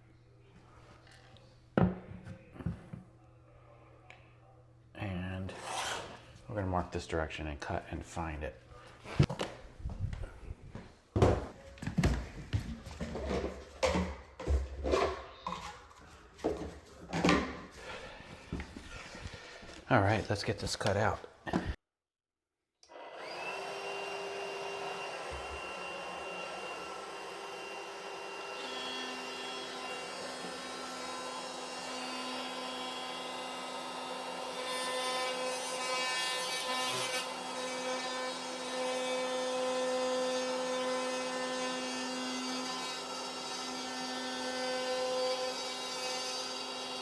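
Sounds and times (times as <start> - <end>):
power tool cutting drywall: 5.5 - 6.2, 22.9 - 47.0.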